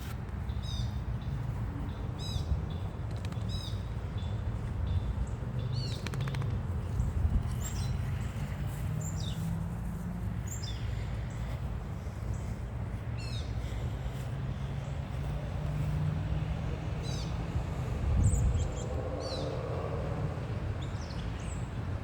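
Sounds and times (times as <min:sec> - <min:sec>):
small birds chirping: 0:00.4 - 0:09.6, 0:10.4 - 0:16.0.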